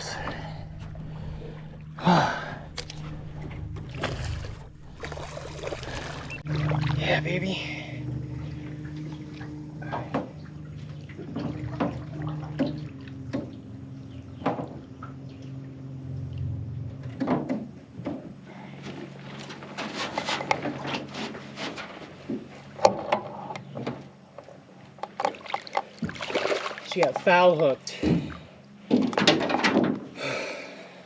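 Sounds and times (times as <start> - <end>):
water splashing: 0.0 - 16.4, 25.1 - 28.5
steady low hum: 0.0 - 31.0.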